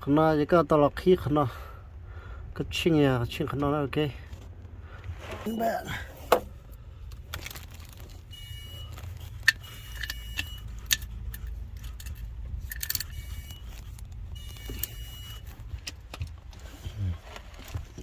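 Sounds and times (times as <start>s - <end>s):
metal tools clinking and clattering: 9.4s - 13.9s.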